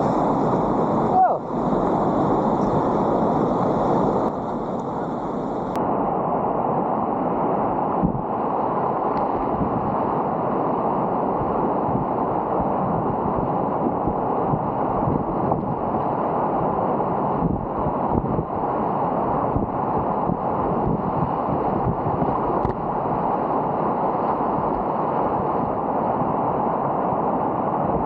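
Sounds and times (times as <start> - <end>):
whitewater rushing: 0.0 - 5.8.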